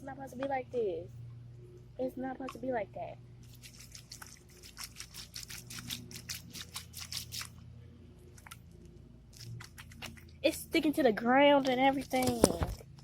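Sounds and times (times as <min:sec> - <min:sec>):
slime squelching and crackling: 0:03.5 - 0:07.6, 0:09.3 - 0:10.5.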